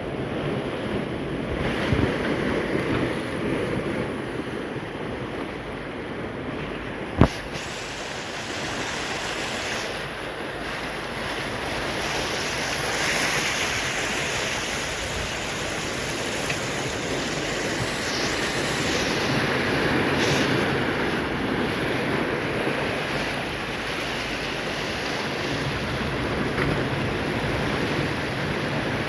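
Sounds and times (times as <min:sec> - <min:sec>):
surf breaking on shore: 0:00.0 - 0:29.0.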